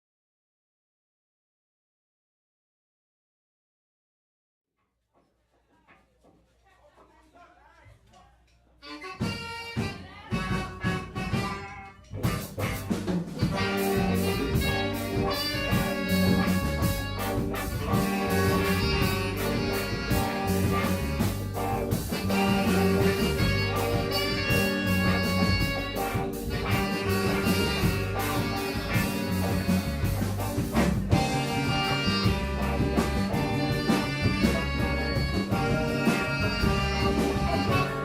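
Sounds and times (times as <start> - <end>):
live band playing: 8.8 - 38.0.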